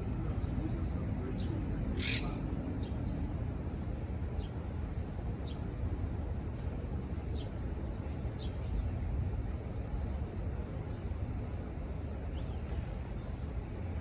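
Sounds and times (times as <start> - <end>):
steady low rumble: 0.0 - 14.0
bird high chirps: 1.9 - 3.0.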